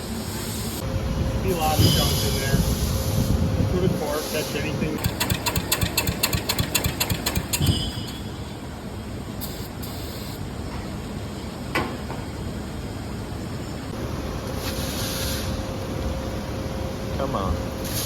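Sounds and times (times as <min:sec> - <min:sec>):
steady background noise: 0:00.0 - 0:18.0
engine cranking without starting: 0:05.0 - 0:08.2.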